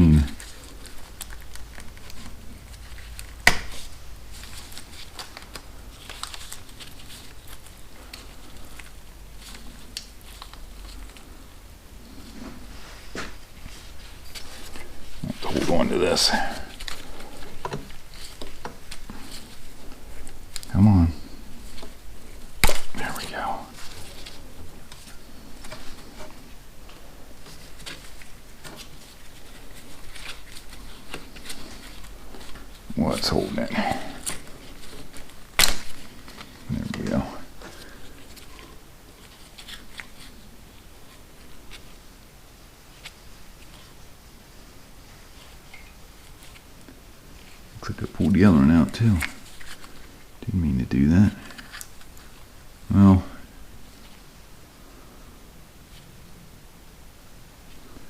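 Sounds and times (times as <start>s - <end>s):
clicks and rustles of hands working: 0.0s - 11.4s, 12.4s - 20.8s, 21.6s - 40.4s, 51.4s - 52.4s.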